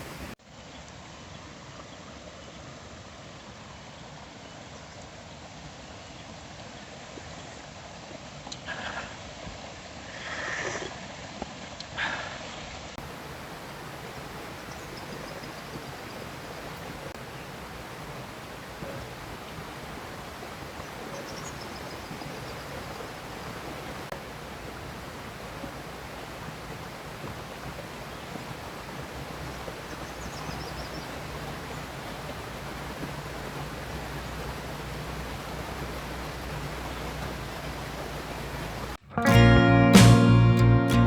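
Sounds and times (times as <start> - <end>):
river water rushing: 0.0 - 0.4, 13.0 - 39.1
faint high chirps: 13.0 - 39.0.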